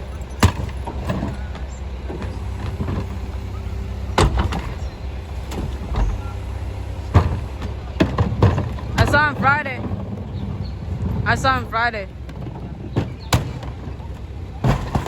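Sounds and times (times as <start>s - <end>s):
garbage truck engine running: 0.0s - 15.0s
sharp knocks and bangs: 12.3s - 14.0s.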